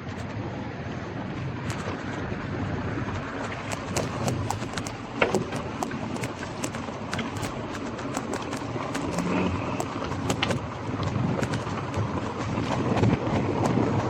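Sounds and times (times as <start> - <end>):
bike clicks and rattles: 1.6 - 2.0, 3.5 - 13.0
tyre and wind noise: 1.6 - 14.0.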